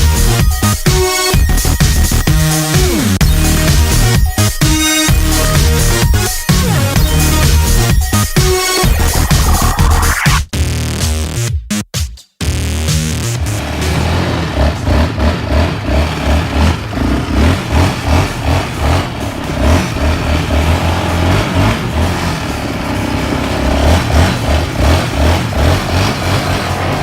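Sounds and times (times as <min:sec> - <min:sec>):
small vehicle engine pulsing: 0:00.0 - 0:10.3, 0:13.2 - 0:27.0.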